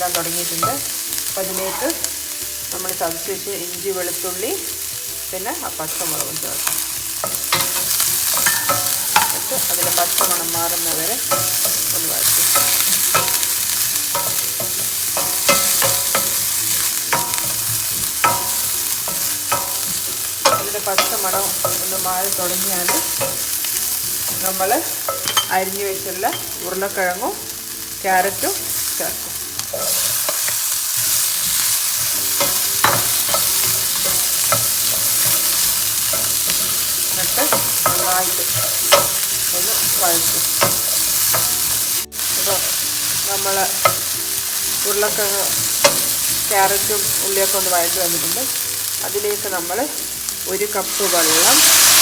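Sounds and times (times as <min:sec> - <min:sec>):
vegetables sizzling in oil: 0:00.0 - 0:52.0
utensil clinking against pan: 0:06.6 - 0:26.7, 0:29.6 - 0:41.8.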